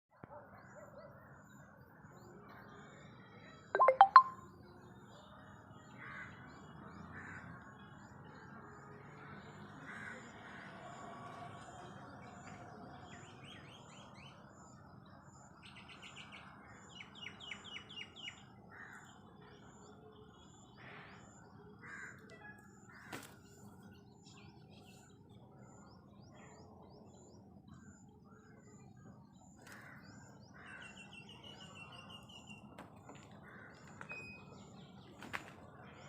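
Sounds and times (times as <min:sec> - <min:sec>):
high bird chirps: 0:03.8 - 0:04.4.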